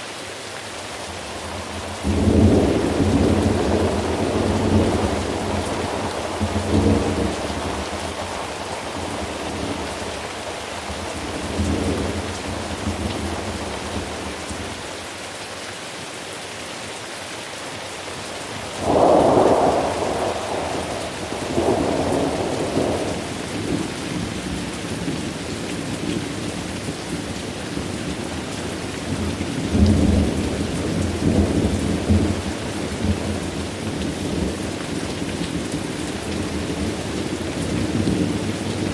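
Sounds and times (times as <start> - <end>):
heavy rain: 0.0 - 38.9
rolling thunder: 1.5 - 10.2, 18.8 - 23.9
loud thunderclap: 18.8 - 23.8.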